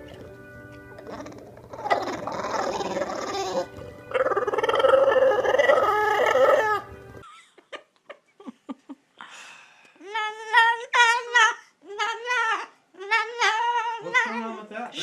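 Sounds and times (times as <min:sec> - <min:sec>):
background music: 0:00.0 - 0:07.5
dog howling: 0:01.0 - 0:06.9.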